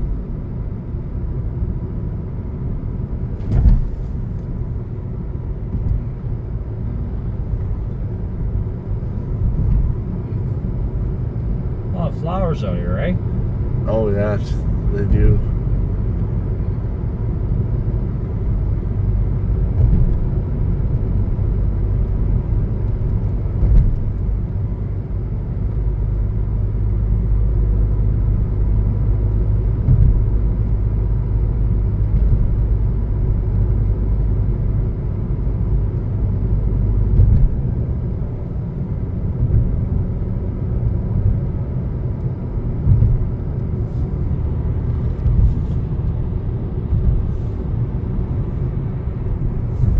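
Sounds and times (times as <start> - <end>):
car engine and tyre rumble: 0.0 - 49.9
knocks from road bumps: 3.4 - 4.8, 9.4 - 10.6, 19.7 - 21.4, 22.9 - 24.5, 29.8 - 30.5, 37.1 - 37.9, 39.3 - 39.9, 42.8 - 46.1.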